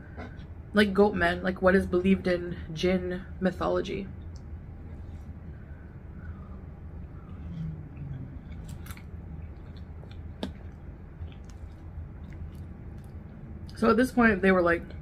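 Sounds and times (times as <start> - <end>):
low steady hum: 0.0 - 15.0
person chewing spaghetti: 5.0 - 13.8.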